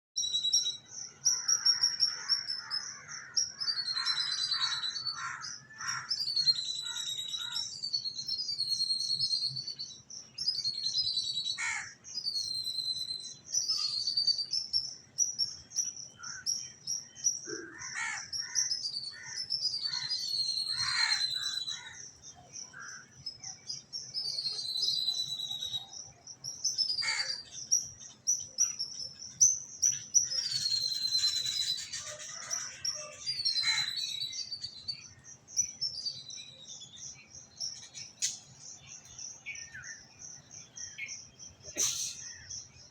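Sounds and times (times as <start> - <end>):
birds singing: 0.2 - 42.9
lower chattering bird calls: 0.2 - 42.9.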